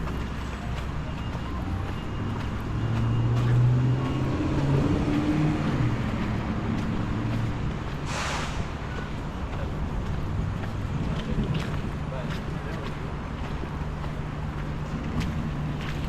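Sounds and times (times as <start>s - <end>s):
street traffic: 0.0s - 16.0s
vehicle engine humming: 0.0s - 16.0s
short hiss: 8.1s - 8.7s.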